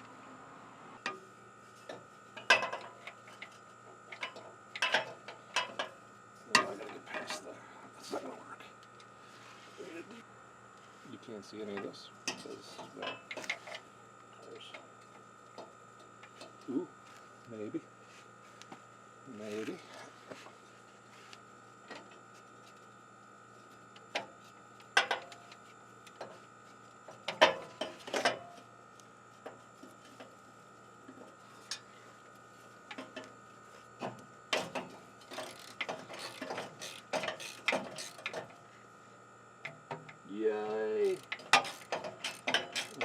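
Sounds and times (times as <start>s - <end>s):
ratchet wrench clicking: 35.3s - 38.4s, 41.2s - 43.0s.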